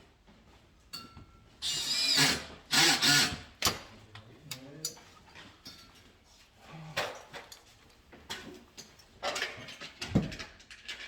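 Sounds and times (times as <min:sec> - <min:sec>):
power drill motor whine: 0:01.7 - 0:03.3.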